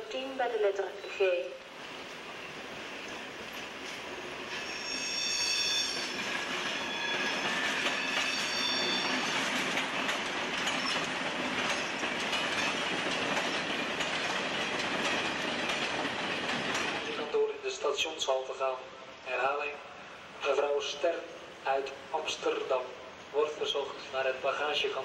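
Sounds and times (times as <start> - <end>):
train rumbling past: 0.0 - 25.0
high-pitched wheel squeal: 4.5 - 9.4
wheels clattering over rail joints: 5.8 - 17.3.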